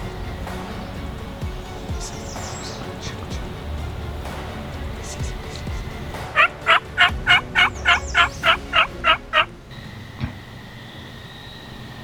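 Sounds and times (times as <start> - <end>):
turkey yelping: 6.4 - 9.5.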